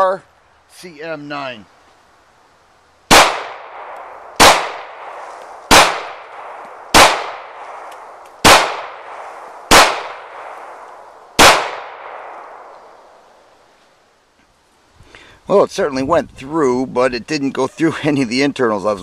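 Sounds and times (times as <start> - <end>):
pistol shots with echo: 3.1 - 13.0.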